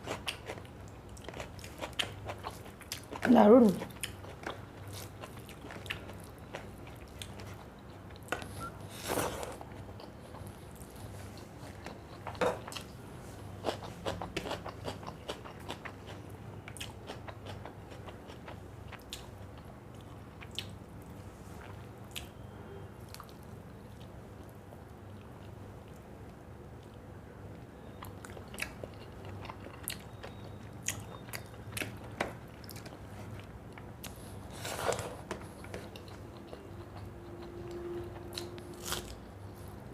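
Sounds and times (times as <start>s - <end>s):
person chewing food: 0.0s - 20.8s, 27.8s - 39.9s.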